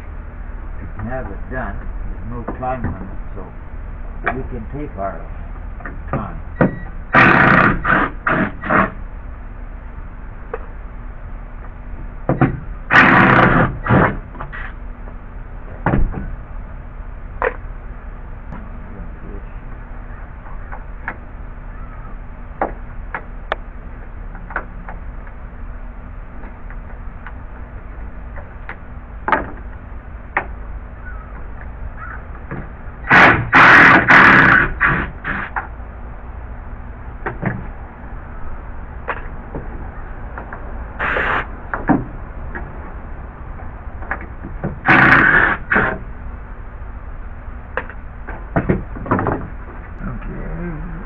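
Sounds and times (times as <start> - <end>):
loud clattering burst: 7.1 - 9.0, 12.9 - 14.2, 33.0 - 35.6, 44.8 - 46.0.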